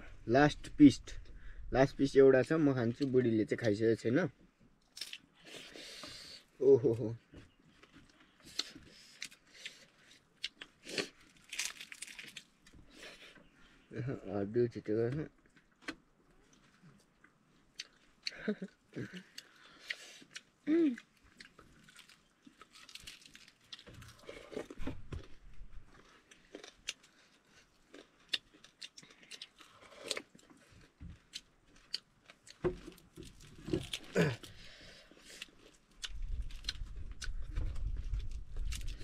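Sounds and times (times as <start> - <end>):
chewing and crunching meat: 7.6 - 13.9, 15.4 - 39.0.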